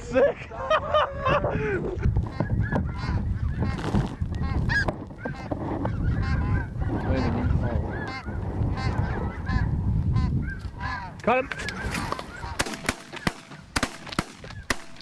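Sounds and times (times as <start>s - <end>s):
low wind rumble: 0.0s - 15.0s
geese honking: 2.3s - 13.8s.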